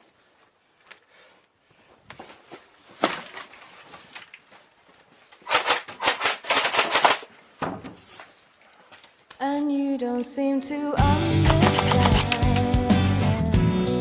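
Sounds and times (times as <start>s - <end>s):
crunching and rustling: 1.7s - 6.6s.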